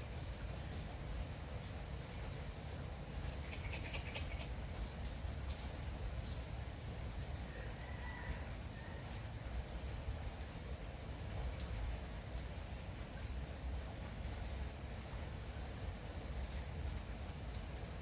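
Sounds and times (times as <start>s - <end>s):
water drips: 0.0s - 7.9s, 8.7s - 18.0s
light steady rain: 0.0s - 18.0s
bird chirps: 3.3s - 5.0s.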